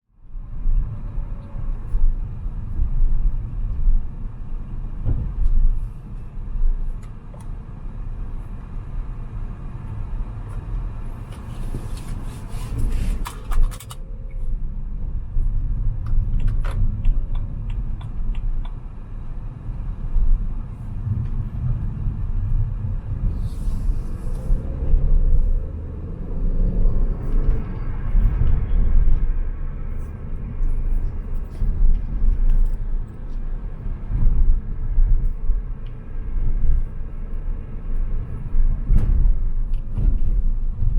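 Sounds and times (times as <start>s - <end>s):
car engine and tyres rumbling: 0.0s - 40.9s.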